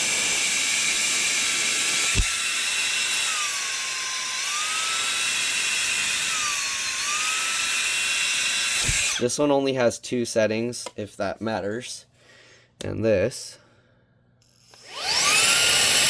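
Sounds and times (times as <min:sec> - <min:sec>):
handheld blower motor whine: 0:00.0 - 0:09.2, 0:14.4 - 0:16.0.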